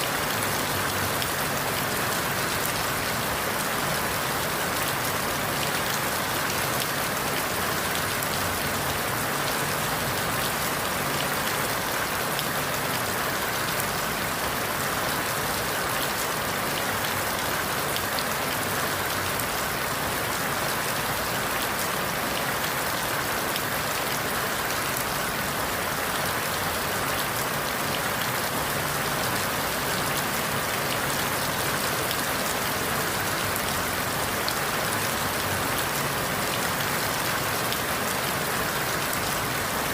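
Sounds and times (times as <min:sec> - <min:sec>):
rain falling through leaves: 0:00.0 - 0:39.9.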